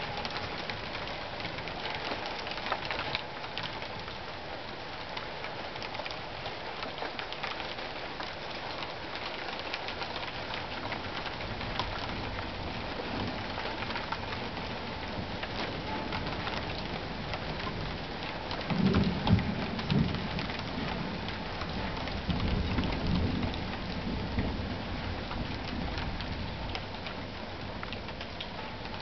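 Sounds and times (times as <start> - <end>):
rain drops ticking on surface: 0.0 - 29.0.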